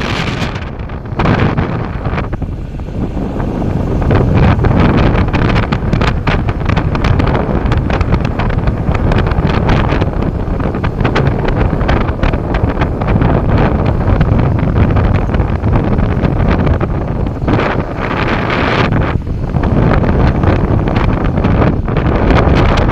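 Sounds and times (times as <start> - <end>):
wind blowing across microphone: 0.0 - 22.9.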